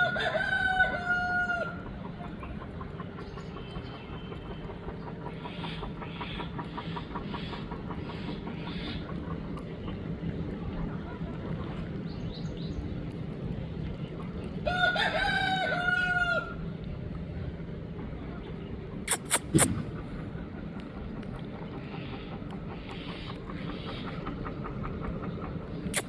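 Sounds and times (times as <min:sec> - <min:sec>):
rooster crowing: 0:00.0 - 0:01.8, 0:14.6 - 0:16.6
soft clucks: 0:01.8 - 0:11.8, 0:19.1 - 0:26.0.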